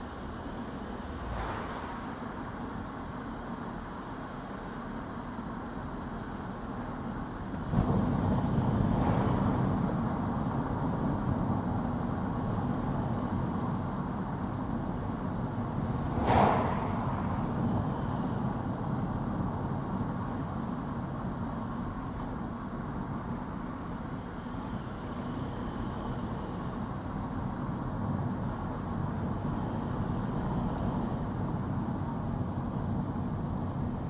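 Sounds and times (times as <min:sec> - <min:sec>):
car driving on road: 0:00.0 - 0:34.0.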